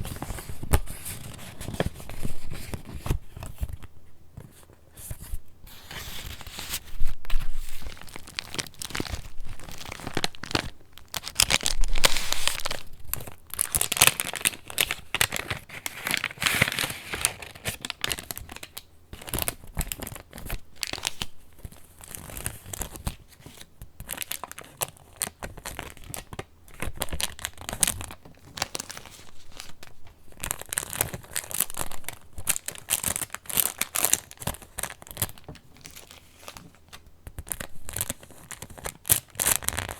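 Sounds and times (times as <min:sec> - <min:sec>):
paper pages rustling: 0:00.0 - 0:18.6.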